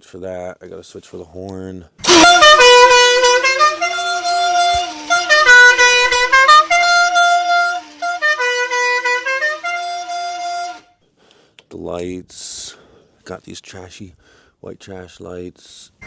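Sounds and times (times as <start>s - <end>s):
motorcycle musical horn tune: 2.0s - 10.9s.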